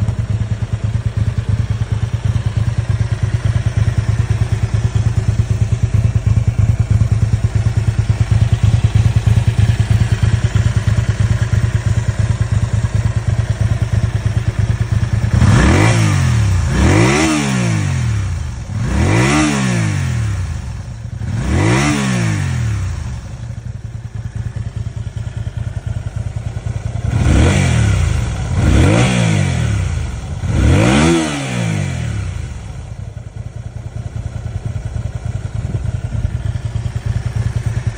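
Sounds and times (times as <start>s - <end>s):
motorcycle engine idling: 0.0s - 37.9s
engine revving: 15.2s - 23.3s, 27.0s - 32.8s.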